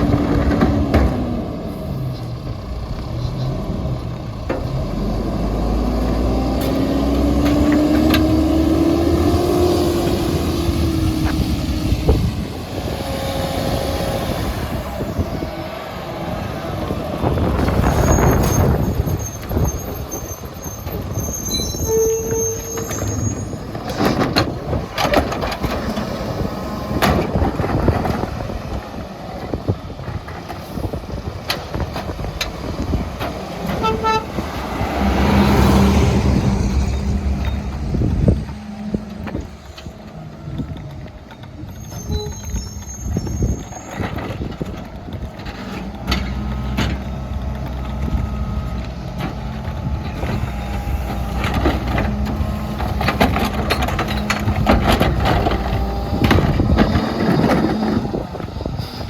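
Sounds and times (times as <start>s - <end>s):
garbage truck engine running: 0.0s - 59.0s
faint air-brake squeals: 17.8s - 23.7s, 41.6s - 44.2s.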